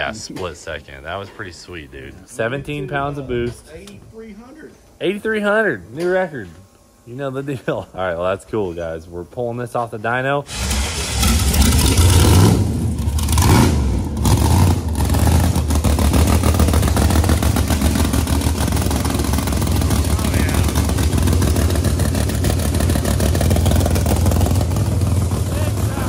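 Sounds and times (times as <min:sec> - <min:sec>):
engine lumpy idle and revving: 0:10.5 - 0:26.0.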